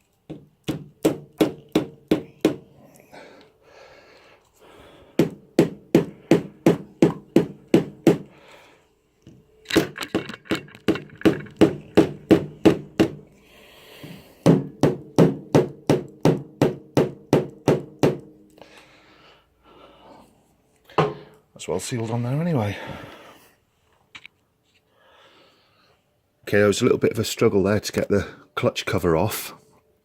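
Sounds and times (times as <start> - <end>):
rubber mallet tapping wood: 0.3 - 2.7, 5.2 - 8.3, 10.2 - 13.3, 14.4 - 18.3.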